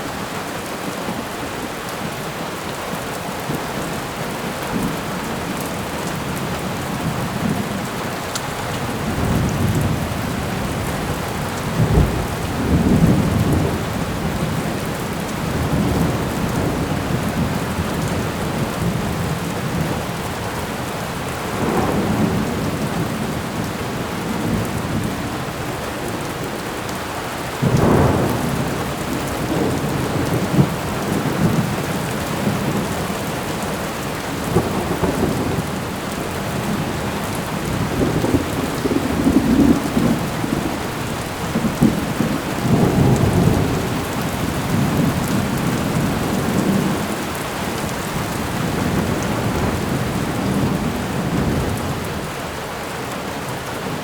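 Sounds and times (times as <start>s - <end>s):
heavy rain: 0.0s - 54.0s
rumbling thunder: 8.9s - 20.0s, 21.4s - 25.6s, 27.6s - 47.2s.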